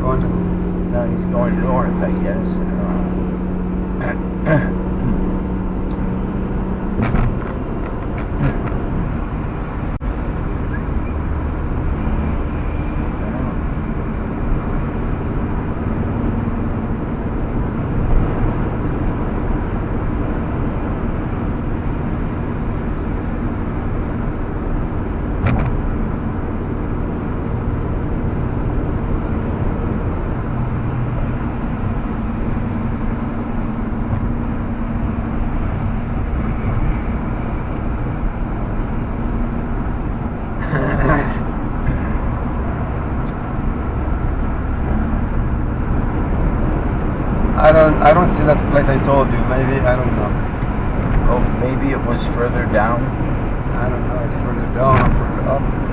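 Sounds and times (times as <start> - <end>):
car road and engine noise: 0.0 - 55.9.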